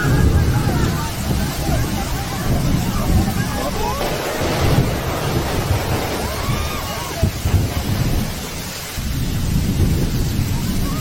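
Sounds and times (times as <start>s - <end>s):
heavy rain hiss: 0.0s - 11.0s.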